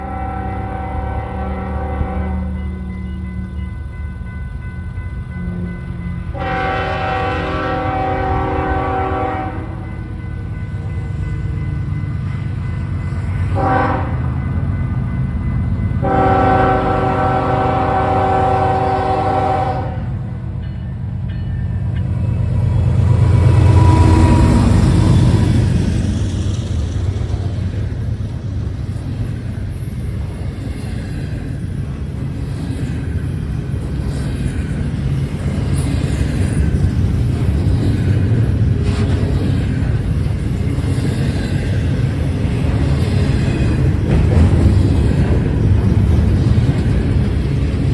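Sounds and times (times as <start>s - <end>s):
locomotive air horn: 0.0s - 2.6s, 6.3s - 9.8s, 13.6s - 14.2s, 16.0s - 20.1s
diesel locomotive passing: 0.0s - 47.9s
train cars rumbling and clattering: 0.0s - 47.9s.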